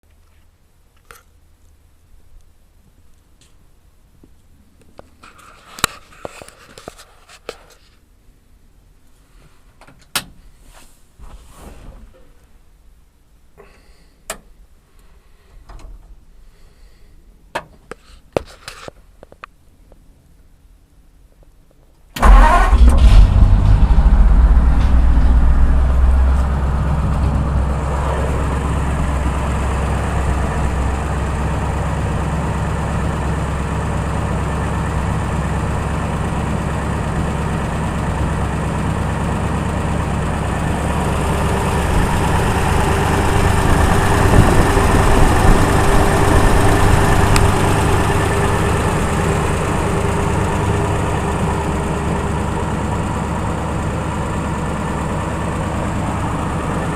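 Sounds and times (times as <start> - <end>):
engine starting and idling: 22.2 - 56.9.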